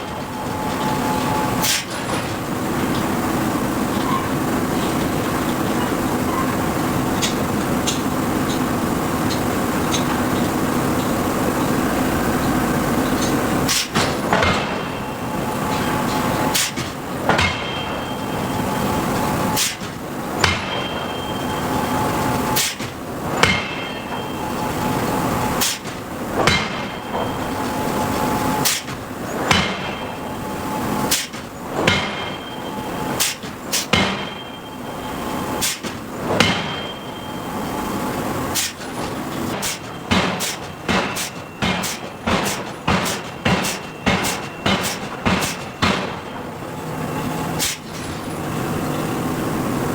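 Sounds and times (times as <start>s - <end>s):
forging hammer striking steel: 13.1s - 35.0s, 35.6s - 37.6s, 38.5s - 46.5s.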